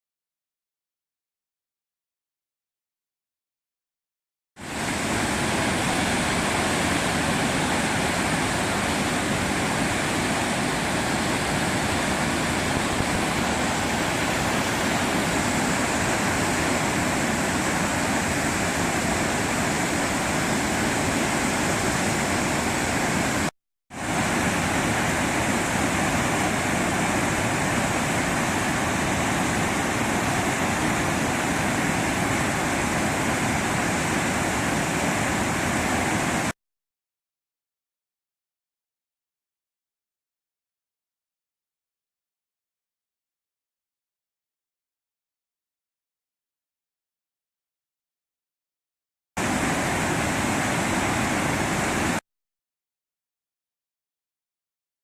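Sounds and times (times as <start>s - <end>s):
waterfall rushing: 4.6s - 36.5s, 49.4s - 52.2s.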